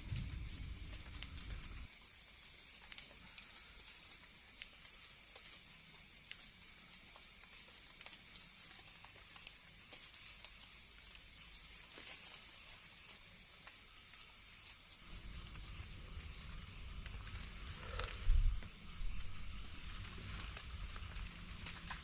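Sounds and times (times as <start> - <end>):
low rumble: 0.0 - 1.9, 15.0 - 21.9
small ticks and clicks: 0.0 - 22.0
steady high hiss: 0.0 - 22.0.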